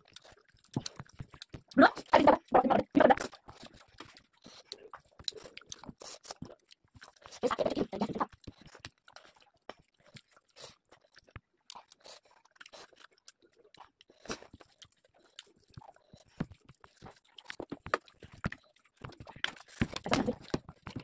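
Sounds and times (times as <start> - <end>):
wet mouth clicks: 0.0 - 10.8
chewing: 0.0 - 21.0.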